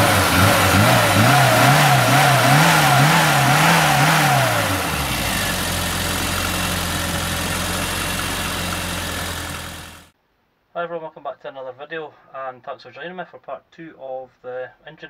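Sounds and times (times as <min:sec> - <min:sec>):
car engine revving and idling: 0:00.0 - 0:10.1.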